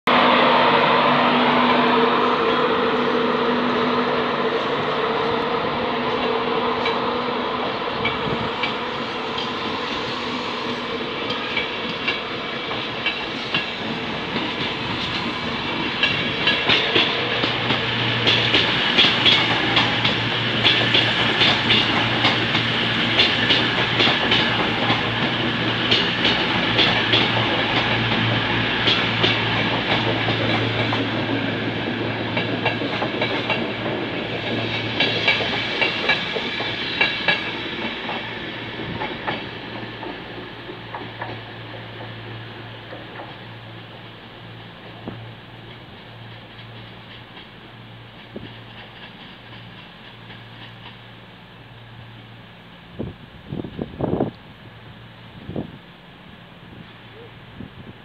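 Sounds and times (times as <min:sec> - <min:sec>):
train wheels clacking over rail joints: 0:11.2 - 0:51.2.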